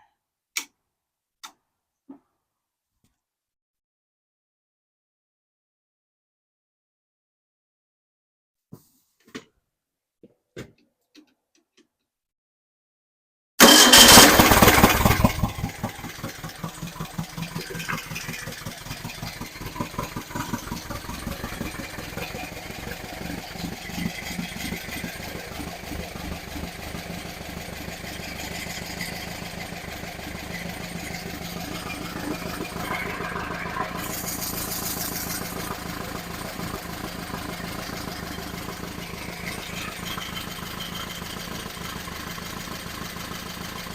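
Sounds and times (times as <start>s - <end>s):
engine starting and idling: 13.6s - 43.9s.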